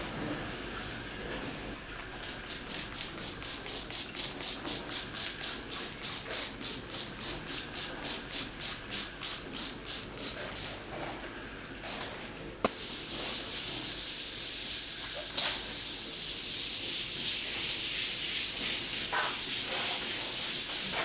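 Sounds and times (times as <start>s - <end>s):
brisk scrubbing: 15.2s - 21.0s.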